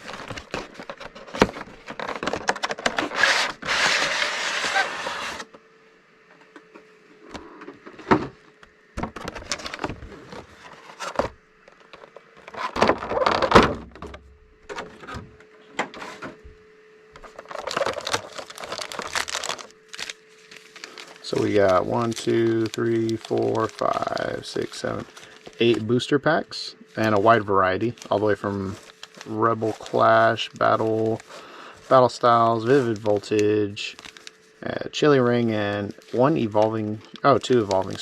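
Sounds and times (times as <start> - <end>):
cardboard rustling and scraping: 0.0 - 5.6, 9.0 - 13.8, 17.2 - 26.2, 26.9 - 34.5.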